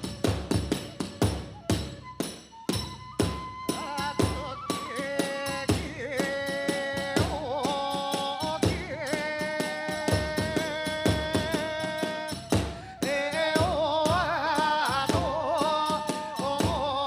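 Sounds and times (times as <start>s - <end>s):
bamboo flute melody: 0.0s - 17.0s
drum beats: 0.0s - 17.0s
small hand cymbals: 0.0s - 17.0s.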